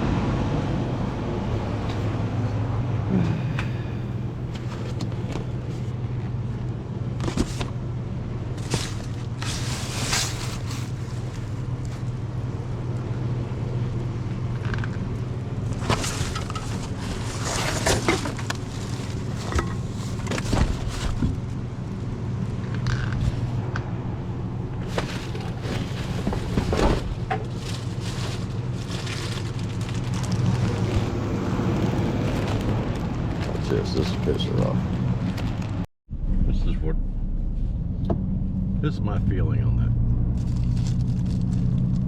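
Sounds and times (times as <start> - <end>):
road noise: 0.0 - 42.0
vehicle engine drone: 0.0 - 42.0
knocks and rattles: 15.7 - 21.4.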